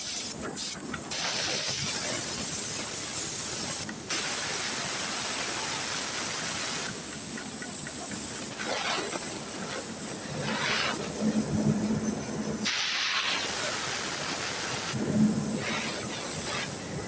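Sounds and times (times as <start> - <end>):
pressure washer jet hissing: 12.6 - 16.8.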